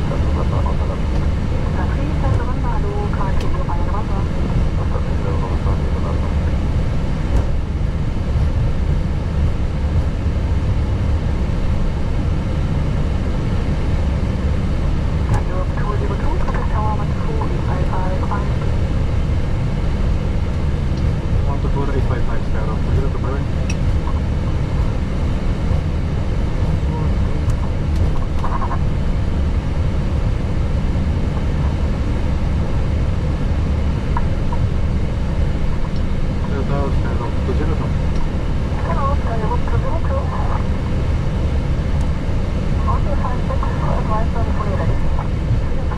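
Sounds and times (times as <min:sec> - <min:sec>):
aircraft cockpit engine rumble: 0:00.0 - 0:45.9.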